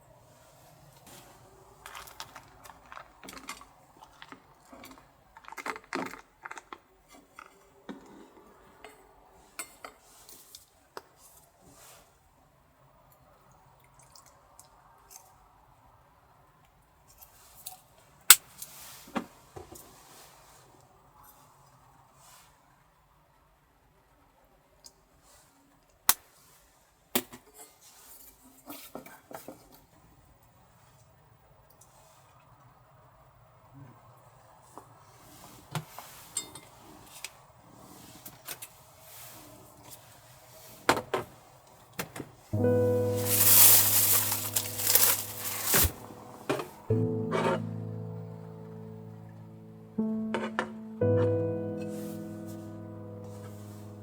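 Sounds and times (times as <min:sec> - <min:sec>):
short rustle: 0:42.6 - 0:46.8.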